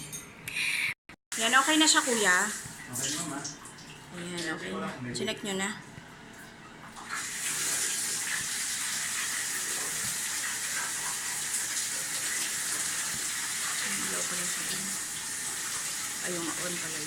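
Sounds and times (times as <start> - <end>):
shower spraying water: 1.3 - 3.6, 7.0 - 17.0.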